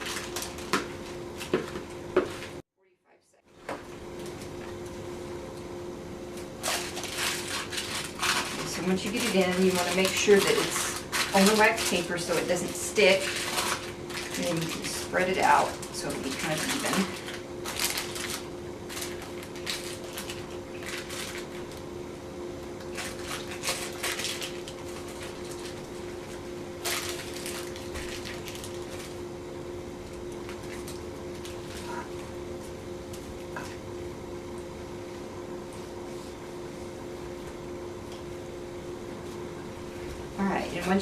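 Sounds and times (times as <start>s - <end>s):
steady electrical hum: 0.0s - 41.0s
spatula scraping fudge: 6.6s - 15.0s.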